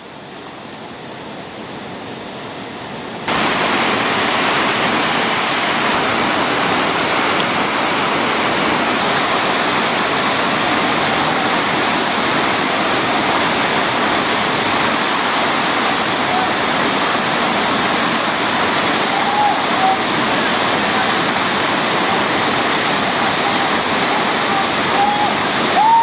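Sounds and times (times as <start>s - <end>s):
river rapid rushing: 0.0s - 26.0s.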